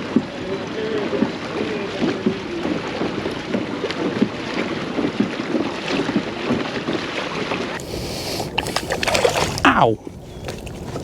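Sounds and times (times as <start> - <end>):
wind buffeting microphone: 7.8 - 11.0.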